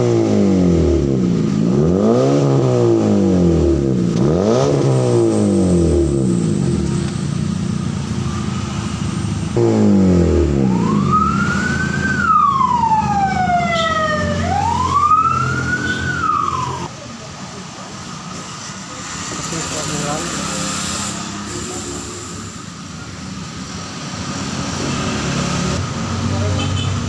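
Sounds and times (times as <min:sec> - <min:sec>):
car engine idling and revving: 0:00.0 - 0:27.0
wailing siren: 0:10.2 - 0:16.9.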